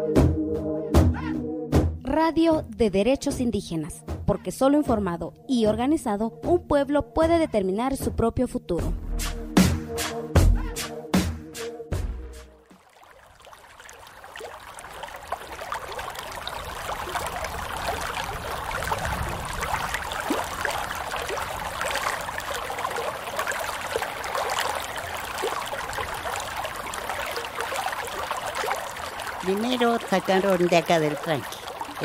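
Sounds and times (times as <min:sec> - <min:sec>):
small water splashes: 0:12.5 - 0:32.0
shallow water trickling: 0:12.6 - 0:32.0.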